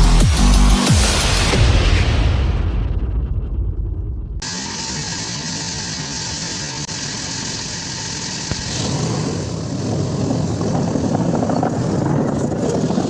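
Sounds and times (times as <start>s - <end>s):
excavator diesel engine running: 4.4s - 11.2s.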